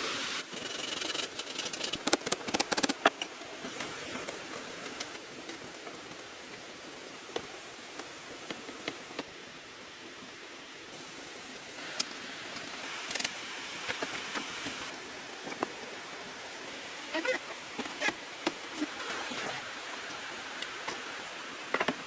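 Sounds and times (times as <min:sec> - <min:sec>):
outdoor hiss: 0:00.0 - 0:22.0.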